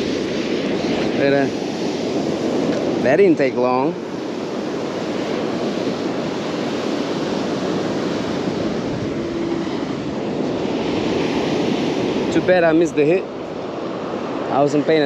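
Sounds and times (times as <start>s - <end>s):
surf washing on beach: 0.0s - 15.0s
wind on microphone: 0.0s - 15.0s
faint steady tone: 9.1s - 10.0s.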